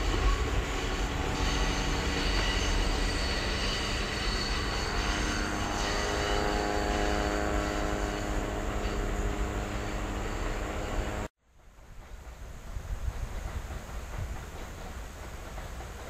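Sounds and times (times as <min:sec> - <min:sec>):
low many-pitched drone: 0:00.0 - 0:11.3
train wheels squealing: 0:00.0 - 0:16.0.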